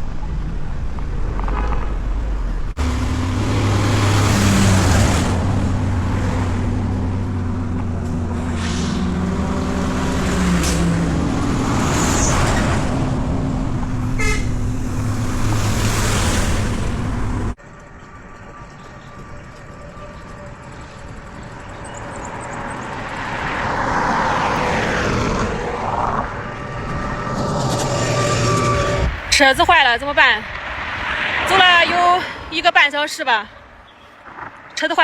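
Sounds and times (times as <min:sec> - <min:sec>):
low engine hum: 0:00.0 - 0:29.4
vehicles passing: 0:00.0 - 0:35.0.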